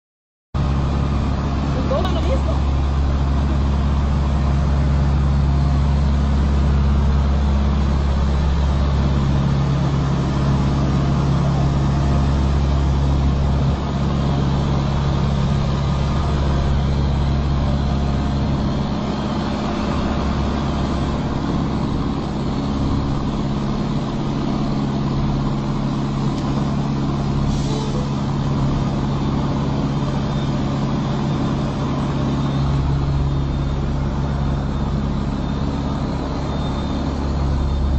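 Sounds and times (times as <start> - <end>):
truck engine humming: 0.6 - 37.9
brief hiss: 27.5 - 28.1.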